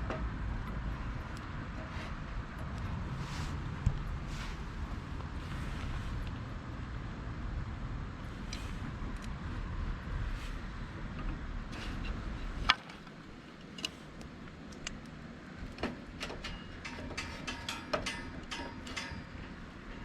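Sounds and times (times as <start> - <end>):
small clicks and clinks: 12.7 - 20.0.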